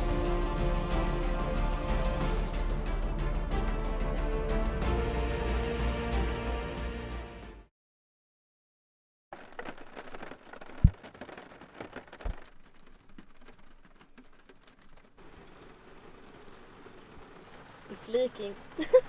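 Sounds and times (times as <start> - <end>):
rain pattering on a roof: 9.4 - 19.0.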